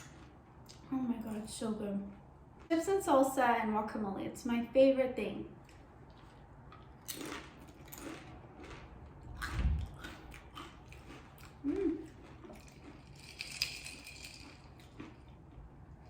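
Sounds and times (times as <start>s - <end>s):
person crunching chips: 5.6s - 15.5s.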